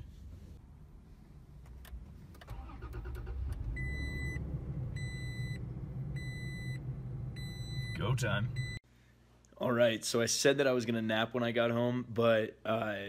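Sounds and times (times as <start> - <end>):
engine starter cranking: 2.4 - 4.8
dashboard warning chime beeps: 5.0 - 5.6, 6.2 - 6.8, 7.4 - 8.8.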